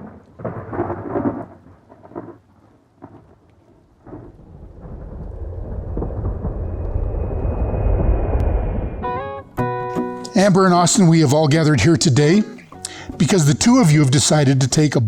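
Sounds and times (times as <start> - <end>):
steady rain: 0.0 - 7.1
thunder rumbling: 0.0 - 9.7.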